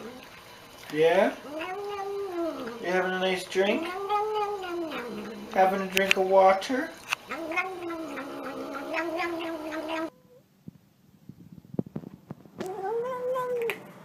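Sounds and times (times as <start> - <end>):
cat yowling meows: 1.4 - 3.0, 3.6 - 5.6, 7.3 - 10.2.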